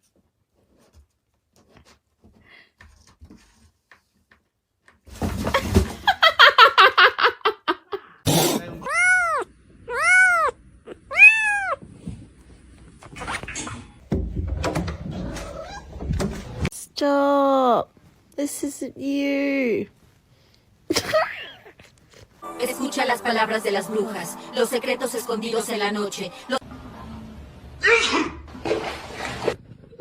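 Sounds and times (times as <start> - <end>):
cat meowing: 8.3 - 11.8
cat yowling: 8.3 - 11.8.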